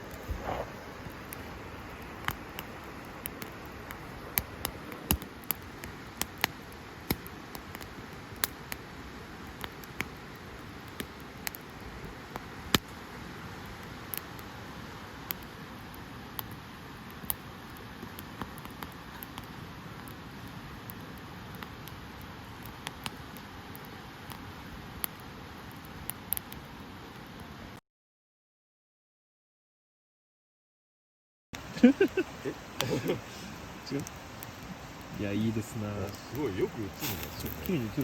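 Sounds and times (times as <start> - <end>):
sharp pops of fire: 0.0 - 13.0, 13.7 - 14.5, 15.2 - 26.6, 33.8 - 38.0
fire hissing: 0.0 - 27.7, 31.6 - 38.0
wood fire crackling: 0.0 - 27.8, 31.6 - 38.0.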